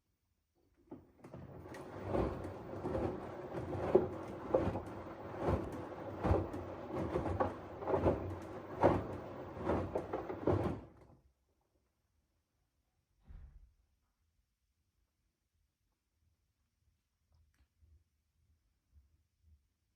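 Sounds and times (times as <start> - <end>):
washing machine drum churning: 0.9 - 11.1.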